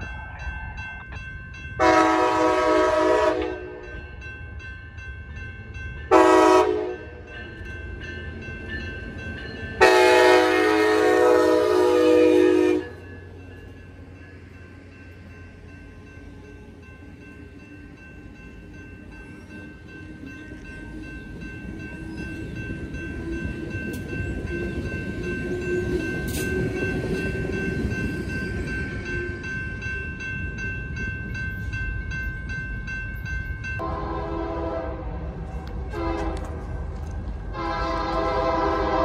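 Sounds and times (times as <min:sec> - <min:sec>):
passenger train rolling on rails: 0:00.0 - 0:39.0
locomotive air horn: 0:01.8 - 0:03.8, 0:06.1 - 0:07.1, 0:09.8 - 0:13.0, 0:33.8 - 0:35.2, 0:35.9 - 0:36.7, 0:37.5 - 0:39.0
steady high ringing: 0:12.6 - 0:34.1.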